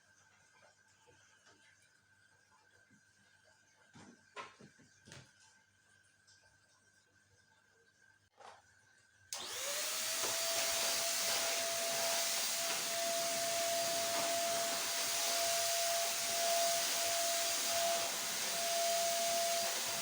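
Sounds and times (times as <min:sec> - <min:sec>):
vacuum cleaner running: 0:09.3 - 0:20.0.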